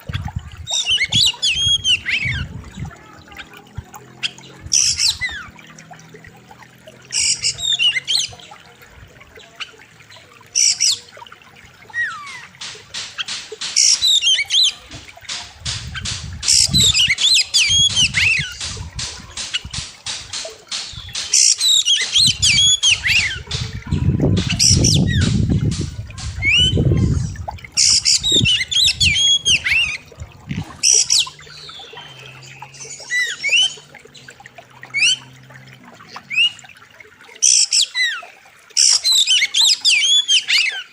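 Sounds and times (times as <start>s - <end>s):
songbird singing: 0.0s - 40.9s
low rumbling noise: 22.2s - 30.8s.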